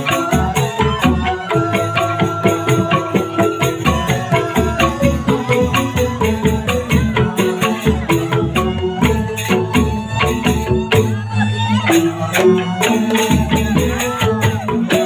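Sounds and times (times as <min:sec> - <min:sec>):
music with a steady beat: 0:00.0 - 0:15.0.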